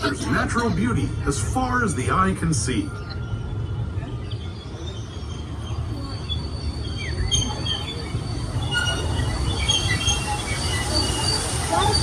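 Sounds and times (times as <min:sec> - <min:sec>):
train rumbling on track: 0:00.0 - 0:12.0
high-pitched wheel squeals: 0:03.1 - 0:12.0.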